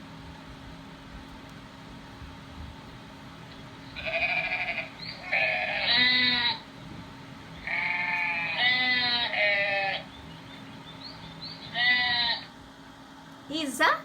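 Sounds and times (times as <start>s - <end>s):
sheep bleating: 4.0s - 6.6s, 7.6s - 10.1s, 11.7s - 12.5s.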